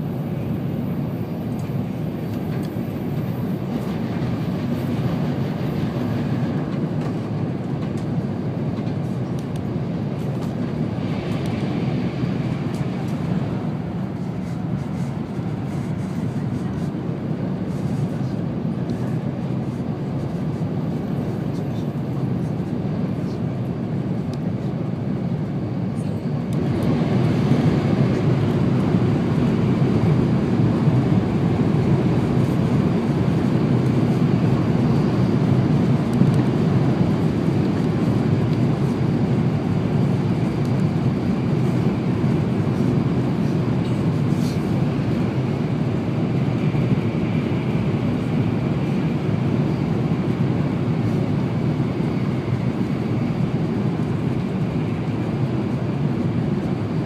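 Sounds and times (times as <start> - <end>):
high-speed train running noise: 0.0 - 57.0.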